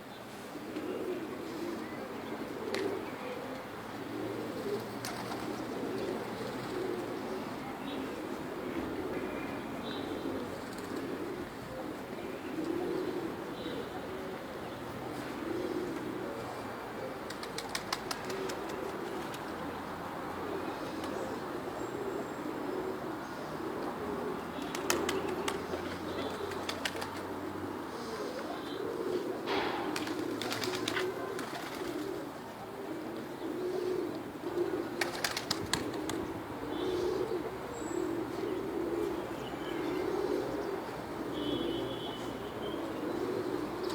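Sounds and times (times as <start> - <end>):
pigeons cooing: 0.0 - 43.9
wings flapping: 5.0 - 5.6, 17.3 - 19.4, 24.6 - 27.3, 29.9 - 32.2, 35.0 - 36.3.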